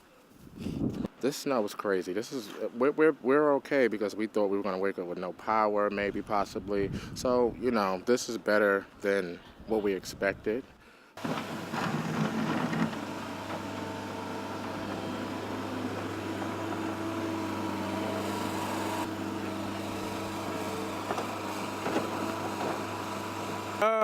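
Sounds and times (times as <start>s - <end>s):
engine humming steadily: 11.2s - 24.0s.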